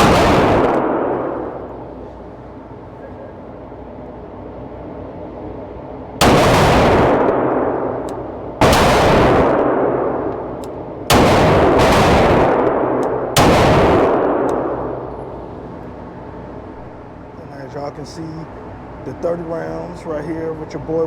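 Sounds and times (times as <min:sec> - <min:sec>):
pistol shots ringing: 0:00.0 - 0:01.8, 0:06.2 - 0:15.4.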